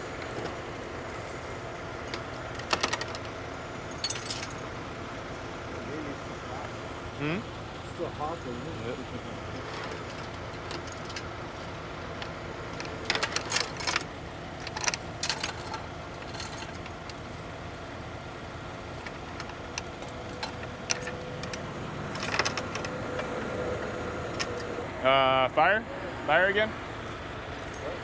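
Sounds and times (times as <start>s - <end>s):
truck engine idling: 0.0s - 28.0s
metal clanking and jingling: 2.0s - 4.9s, 9.5s - 17.3s, 19.0s - 23.3s.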